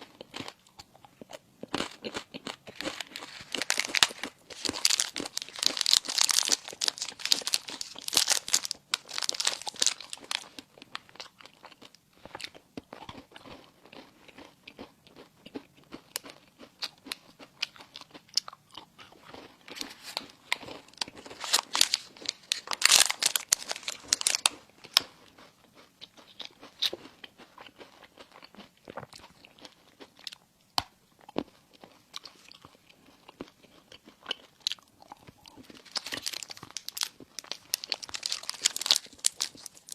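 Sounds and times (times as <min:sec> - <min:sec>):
crunchy bites into crisp bread: 0:01.6 - 0:11.4, 0:16.2 - 0:25.2, 0:33.9 - 0:39.9.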